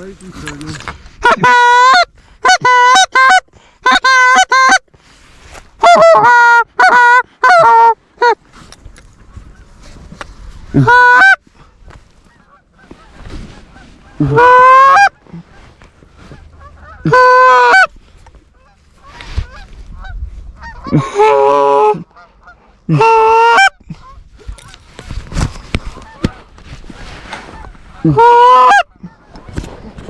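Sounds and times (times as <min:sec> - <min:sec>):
goose honking: 0:01.2 - 0:04.8, 0:05.8 - 0:08.4, 0:10.7 - 0:11.4, 0:12.2 - 0:24.8, 0:27.5 - 0:29.5.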